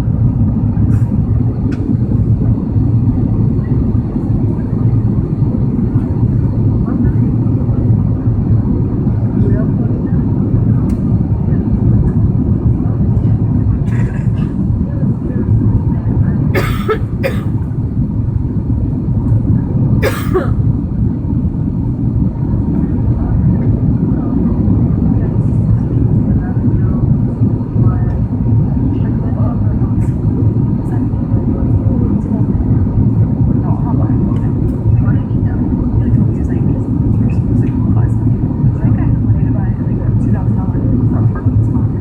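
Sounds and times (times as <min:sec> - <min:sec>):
airliner cabin engine drone: 0:00.0 - 0:42.0.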